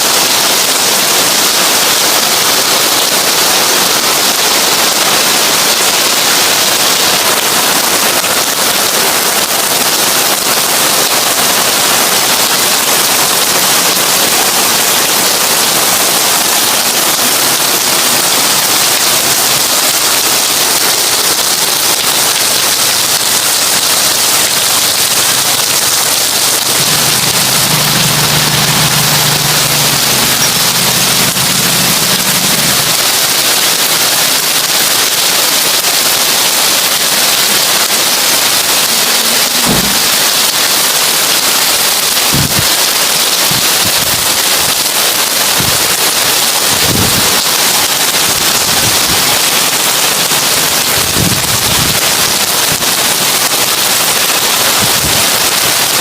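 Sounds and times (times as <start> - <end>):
heavy rain on a tin roof: 0.0 - 56.0
low hum: 26.6 - 33.0.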